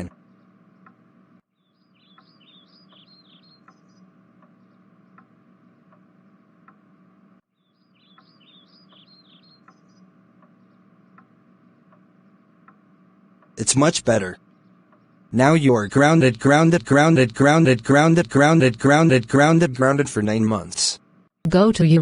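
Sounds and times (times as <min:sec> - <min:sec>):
steady low hum: 0:00.0 - 0:22.0
high bird chirps: 0:01.5 - 0:04.9, 0:07.5 - 0:10.9
soft ticks: 0:02.9 - 0:03.8, 0:04.4 - 0:05.3, 0:05.9 - 0:06.8, 0:08.9 - 0:12.8.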